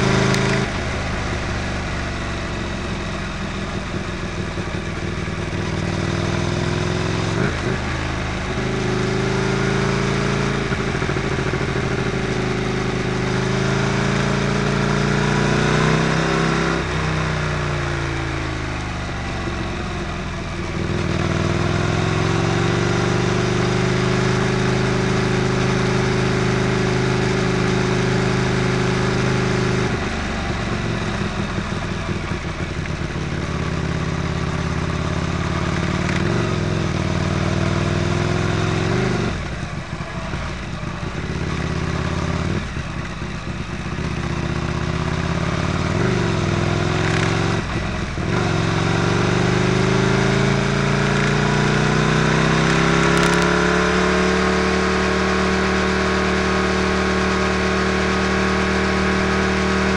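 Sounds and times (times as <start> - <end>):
motorcycle engine cruising: 0.0 - 59.9
wind and road rush: 0.0 - 59.9.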